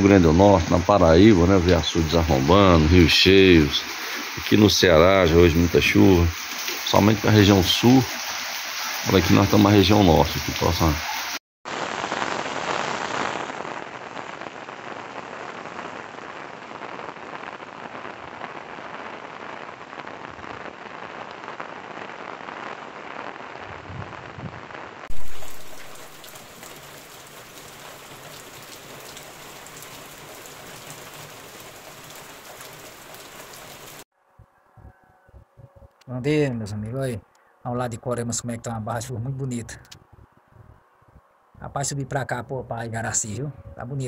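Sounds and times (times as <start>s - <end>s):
heavy rain on pavement: 0.0s - 34.1s.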